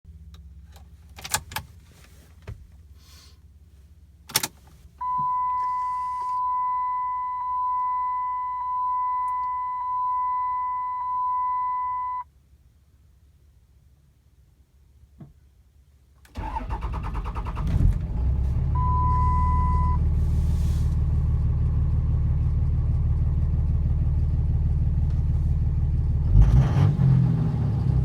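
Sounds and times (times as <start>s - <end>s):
car electronic beep tone: 5.0s - 12.2s, 18.7s - 20.1s.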